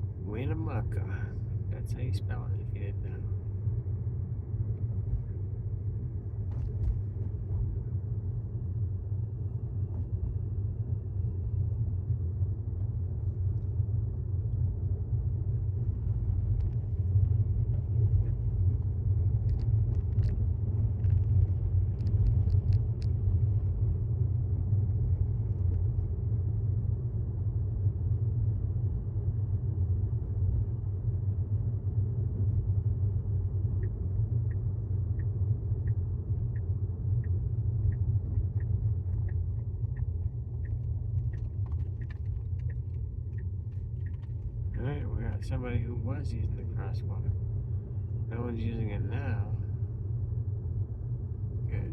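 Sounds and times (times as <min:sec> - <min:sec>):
road and tyre rumble: 0:00.0 - 0:51.9.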